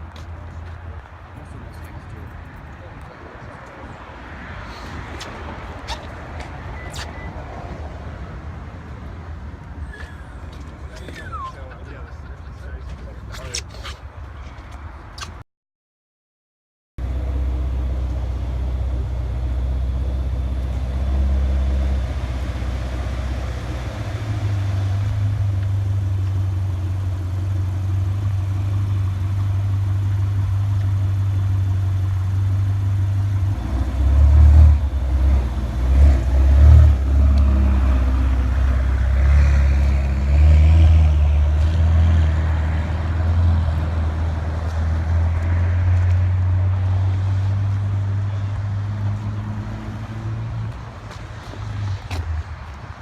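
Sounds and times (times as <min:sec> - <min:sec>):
car engine idling: 0:22.0 - 0:34.0.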